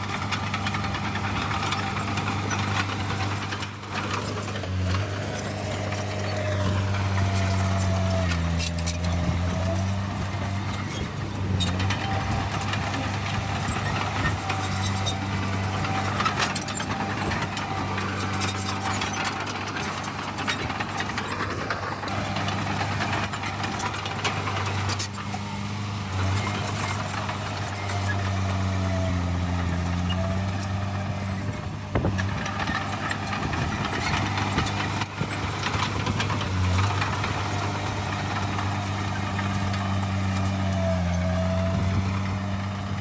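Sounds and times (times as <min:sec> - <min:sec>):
diesel machinery engine running: 0:00.0 - 0:43.0
knocks and rattles: 0:00.1 - 0:25.1.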